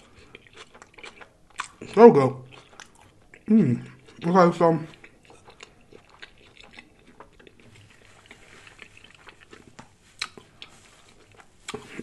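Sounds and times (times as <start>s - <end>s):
wet chewing clicks and smacks: 0.0s - 12.0s.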